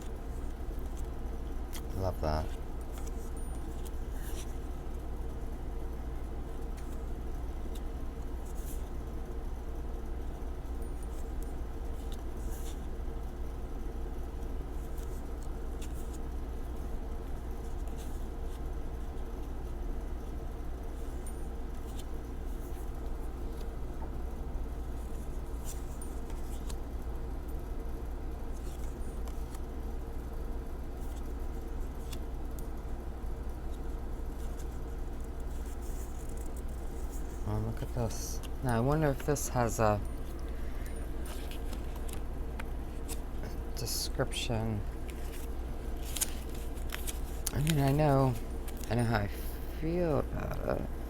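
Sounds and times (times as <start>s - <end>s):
cards flipping and clicking: 1.7s - 4.6s, 14.8s - 16.3s, 25.0s - 26.8s, 28.5s - 29.7s, 33.7s - 37.4s, 38.1s - 43.3s, 45.0s - 49.1s.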